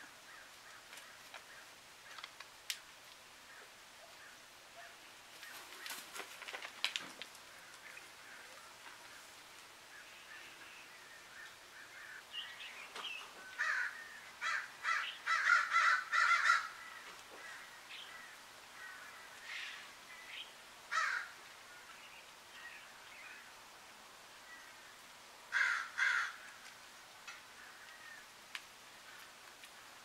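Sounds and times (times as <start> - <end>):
faint bird chirping: 7.5 - 15.4, 16.5 - 23.7
harsh bird caws: 11.3 - 12.3, 13.4 - 20.0, 20.9 - 22.0, 25.5 - 26.6.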